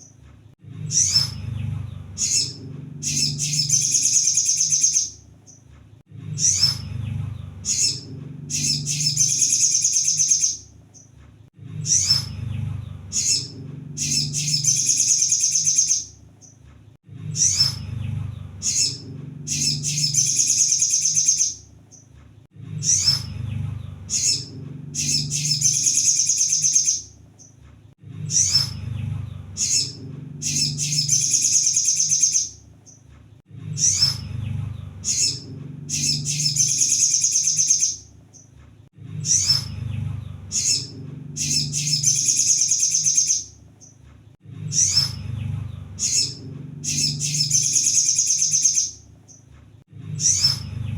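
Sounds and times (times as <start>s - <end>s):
low hum: 0.6s - 42.7s, 44.4s - 48.1s, 49.9s - 50.9s
bird singing chips and trill: 0.9s - 1.4s, 2.0s - 5.6s, 7.6s - 11.1s, 13.1s - 16.6s, 18.6s - 22.1s, 24.1s - 27.6s, 29.5s - 33.0s, 35.0s - 38.5s, 40.4s - 44.0s, 46.0s - 49.4s.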